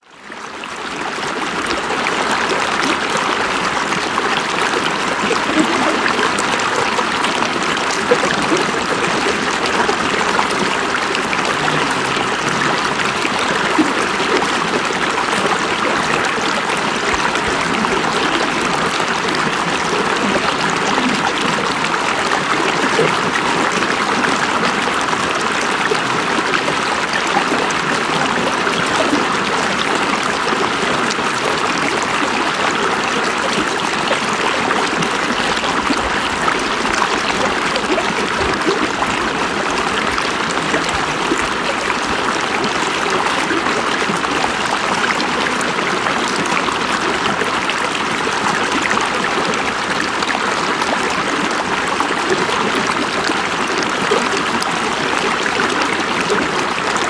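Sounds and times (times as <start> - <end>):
river water flowing over rocks: 0.0 - 57.0.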